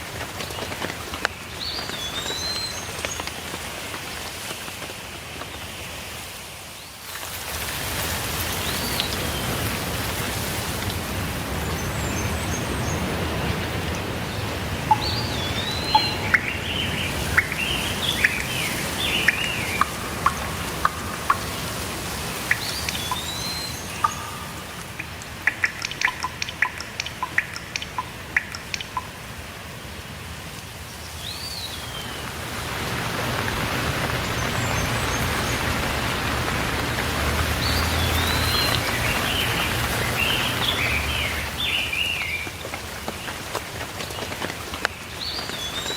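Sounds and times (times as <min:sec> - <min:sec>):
steady rainfall hiss: 0:00.0 - 0:45.9
birds chirping and whistling: 0:14.8 - 0:29.0, 0:37.5 - 0:42.5
sharp ticks: 0:14.8 - 0:29.2.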